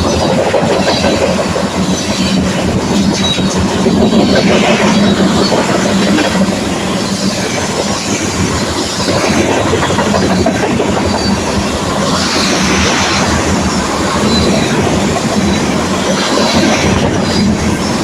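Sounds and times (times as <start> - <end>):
train wheels clattering over rail joints: 0.0 - 18.0
high-pitched wheel squeals: 11.0 - 14.8.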